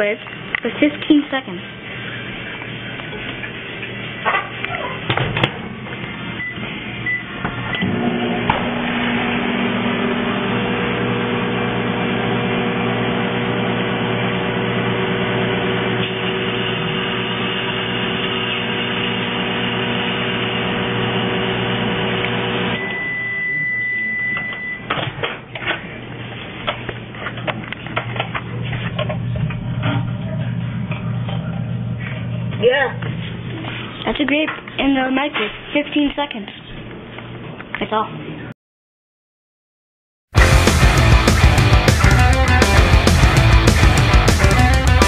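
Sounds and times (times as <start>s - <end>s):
microwave oven humming: 1.6s - 24.9s
microwave long beep: 6.3s - 24.9s.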